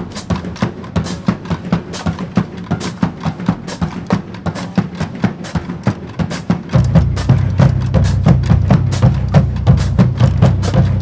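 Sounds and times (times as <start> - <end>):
sharp snare drum strokes: 0.0 - 11.0
deep drum hits: 6.8 - 11.0.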